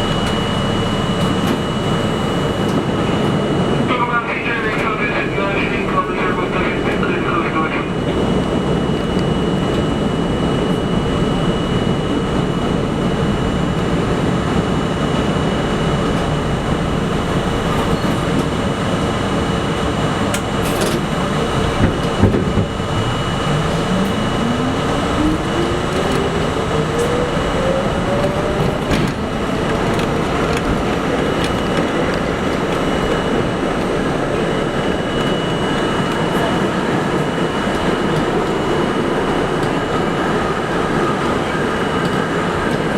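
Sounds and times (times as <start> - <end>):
subway train rumble: 0.0 - 42.9
motor whine rising in pitch: 21.2 - 36.2.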